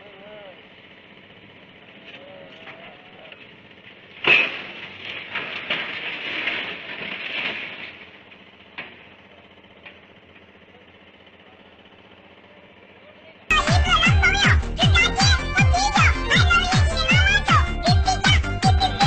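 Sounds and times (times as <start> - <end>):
loud crash with clattering: 4.1 - 9.2.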